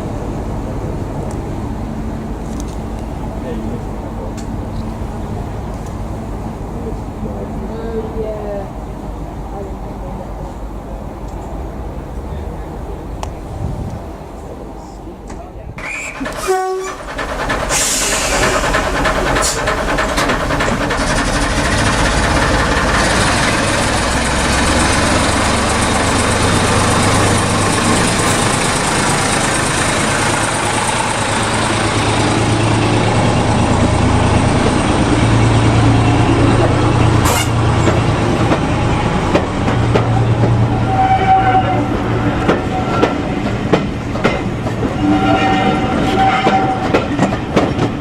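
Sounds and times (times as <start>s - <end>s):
low engine drone: 0.0s - 13.5s, 16.2s - 45.0s
train rumble and rail noise: 0.0s - 48.0s
wheels clicking: 15.8s - 32.5s.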